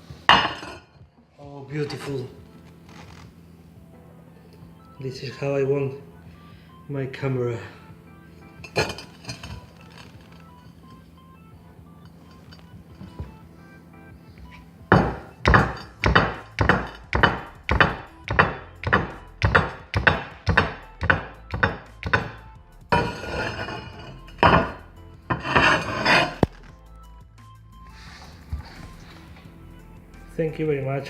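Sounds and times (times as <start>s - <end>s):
clattering and scraping: 0.3s - 1.0s, 8.6s - 11.0s, 12.0s - 13.4s, 22.9s - 26.7s.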